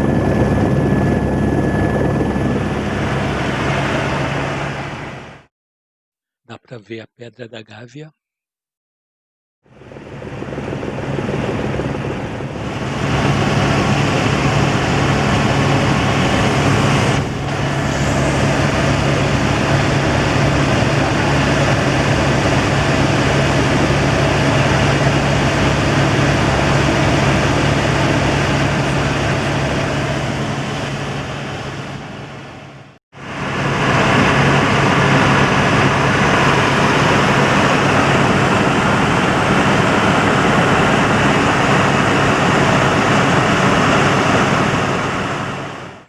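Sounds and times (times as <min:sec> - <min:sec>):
helicopter rotor and engine: 0:00.0 - 0:05.5, 0:09.6 - 0:46.0.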